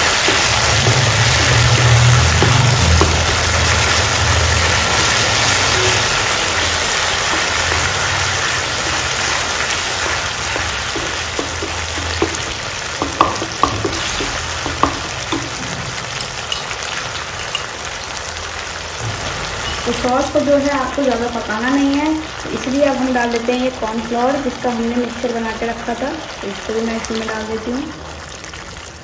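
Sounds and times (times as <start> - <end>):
spatula knocking against pan: 0.0 - 4.2, 4.8 - 16.0
vegetables sizzling in a wok: 0.0 - 29.0.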